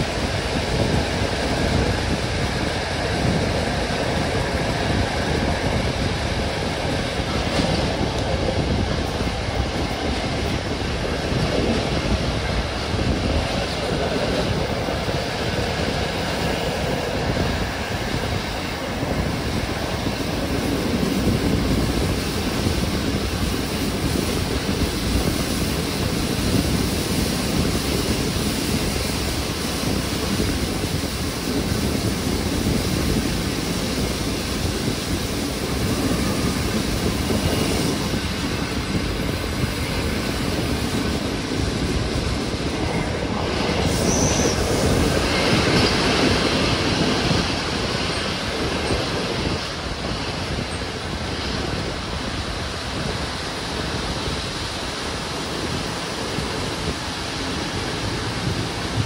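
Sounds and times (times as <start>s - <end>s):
rush of passing air: 0.0s - 59.0s
train wheels rumbling on rails: 0.0s - 59.0s
high wheel squeal: 42.8s - 46.5s.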